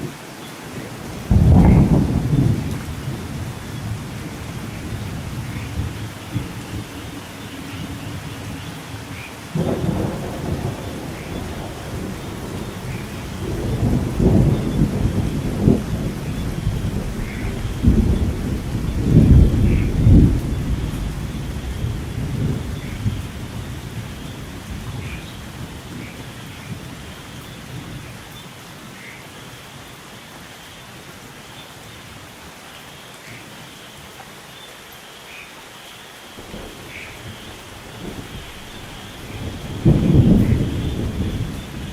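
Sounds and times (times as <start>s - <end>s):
steady rain: 0.0s - 41.9s
thunder rumbling: 0.7s - 28.2s, 36.4s - 41.9s.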